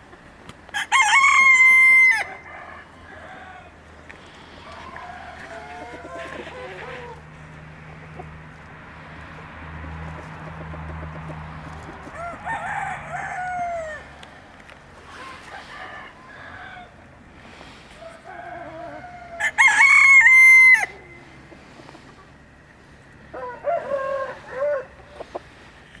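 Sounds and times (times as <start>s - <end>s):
hens clucking: 0.0s - 26.0s
rooster crowing: 0.7s - 7.4s, 10.6s - 14.4s, 15.1s - 17.1s, 17.9s - 21.4s, 23.3s - 25.2s.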